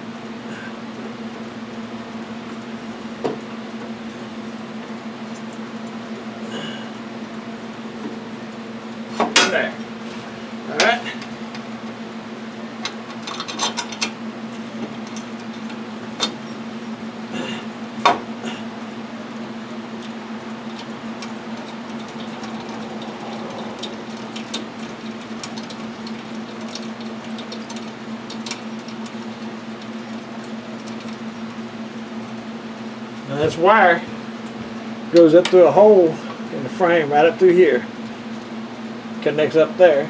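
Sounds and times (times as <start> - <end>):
steady low hum: 0.0 - 35.2
metal tools clicking and tapping: 12.8 - 14.2.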